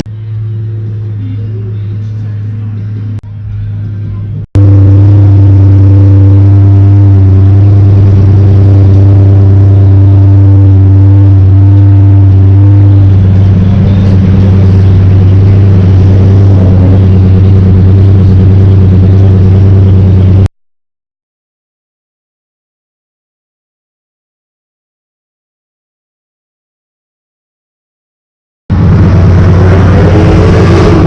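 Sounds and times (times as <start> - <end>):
car engine running loud: 0.0 - 20.5, 28.7 - 31.0.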